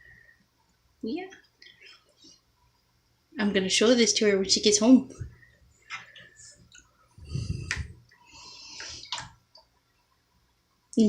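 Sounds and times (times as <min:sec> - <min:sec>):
bathwater splashing: 0:08.6 - 0:09.4.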